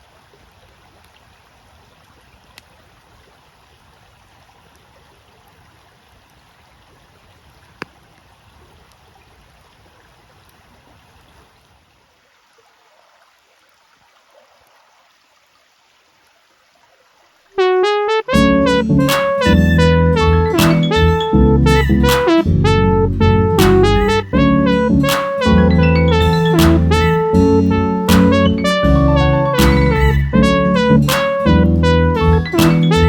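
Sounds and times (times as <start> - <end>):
keyboard-like music: 17.6 - 33.0
sharp pop from fire: 25.1 - 25.4, 31.1 - 31.4.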